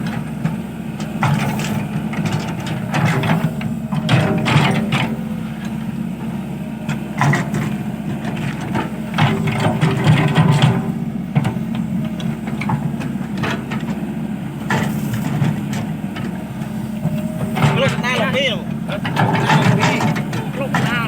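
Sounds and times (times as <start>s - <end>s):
excavator diesel engine running: 0.0s - 21.0s
machine knocks and clanks: 1.0s - 5.7s, 17.0s - 21.0s.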